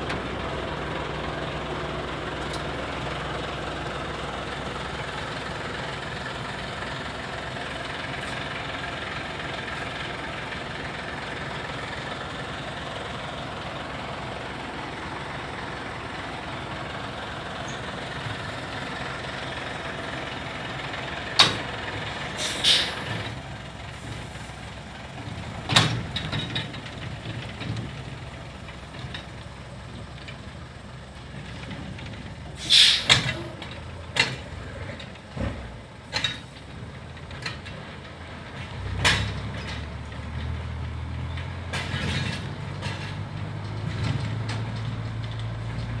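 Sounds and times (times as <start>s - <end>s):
diesel truck engine running: 0.0s - 46.0s
short loud hisses: 22.4s - 23.1s, 32.6s - 33.2s.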